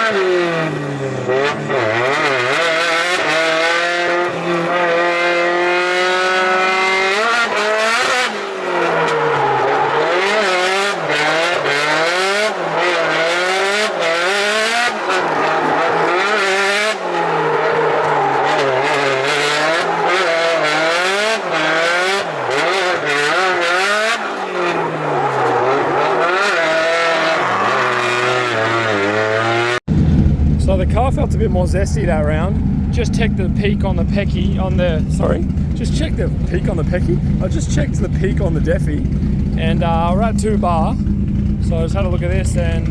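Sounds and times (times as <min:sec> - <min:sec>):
car engine revving hard: 0:00.0 - 0:30.4.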